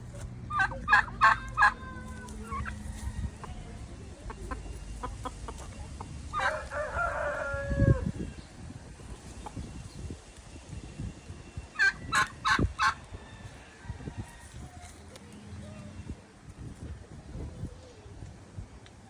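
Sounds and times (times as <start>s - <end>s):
fowl calling: 0.5s - 8.2s.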